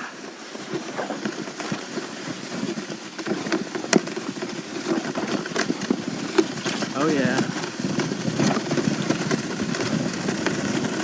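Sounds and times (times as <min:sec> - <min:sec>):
sled knocking on bumps: 0:00.0 - 0:11.0
sled scraping over snow: 0:00.0 - 0:11.0.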